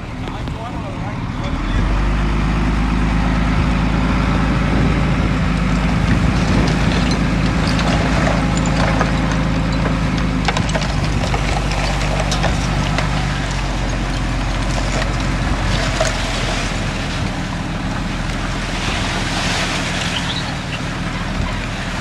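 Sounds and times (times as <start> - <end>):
diesel engine running: 0.0 - 22.0
metal clanks and knocks: 5.6 - 17.4.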